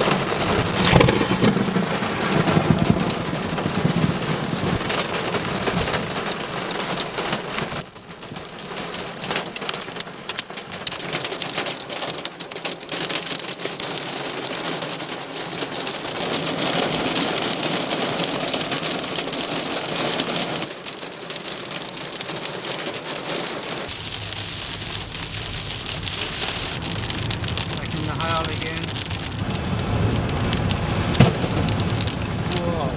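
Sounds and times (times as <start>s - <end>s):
heavy rain on a hard surface: 0.0s - 32.9s.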